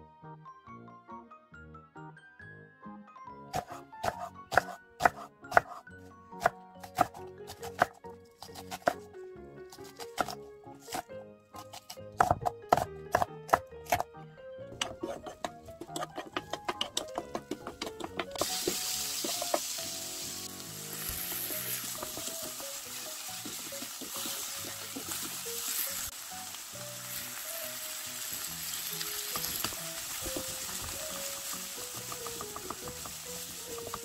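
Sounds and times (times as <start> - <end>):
knife chopping on wooden board: 3.6 - 5.8, 9.9 - 14.0, 14.8 - 19.7, 32.0 - 34.0
frying pan sizzling: 15.9 - 34.0.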